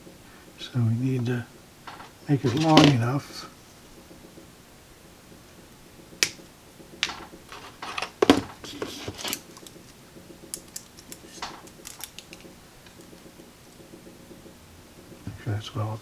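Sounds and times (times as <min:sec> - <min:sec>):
hand tools clicking and snipping wire: 0:01.8 - 0:03.2, 0:06.2 - 0:13.9.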